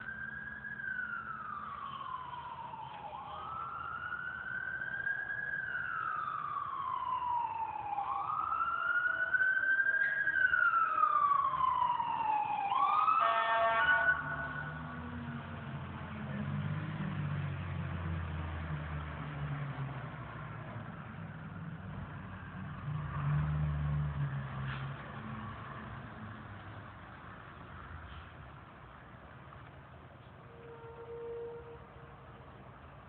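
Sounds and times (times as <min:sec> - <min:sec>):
fire engine siren wailing: 0:00.0 - 0:19.4, 0:20.3 - 0:26.2, 0:30.4 - 0:33.0
horn blast: 0:13.2 - 0:14.6, 0:30.5 - 0:32.0.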